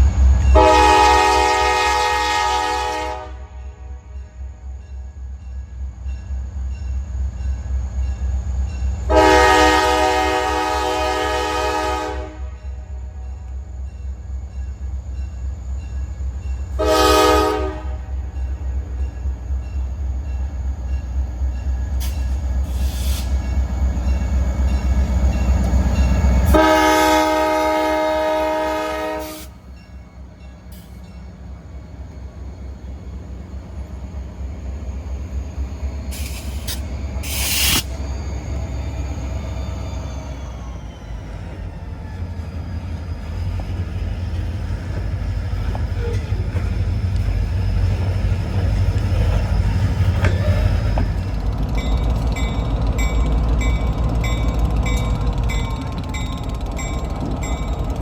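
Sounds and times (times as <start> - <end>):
train rumbling past: 0.0 - 58.0
locomotive air horn blasts: 0.6 - 4.2, 9.1 - 13.1, 16.8 - 18.2, 26.5 - 29.6, 36.1 - 38.0.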